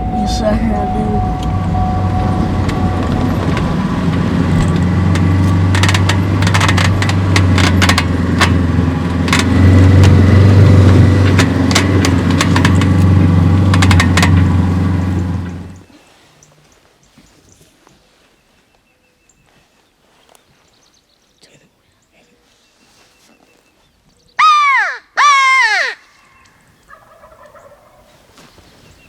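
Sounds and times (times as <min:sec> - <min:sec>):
vehicle engine running: 0:00.0 - 0:15.9
clicks and rattles: 0:02.7 - 0:15.8.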